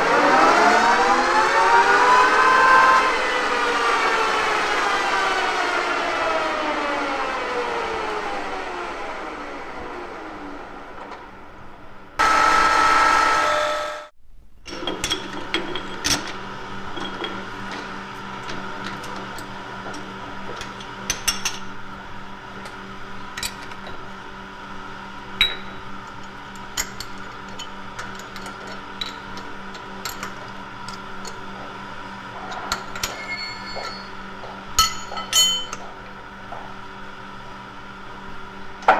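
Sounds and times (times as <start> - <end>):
loud noisy burst: 12.2 - 14.2.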